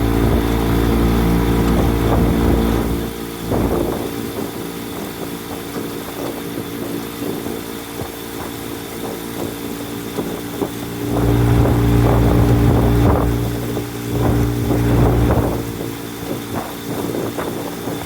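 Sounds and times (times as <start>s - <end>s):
loud low rumble: 0.0s - 3.7s, 10.3s - 16.1s
motorboat engine running: 0.0s - 18.0s.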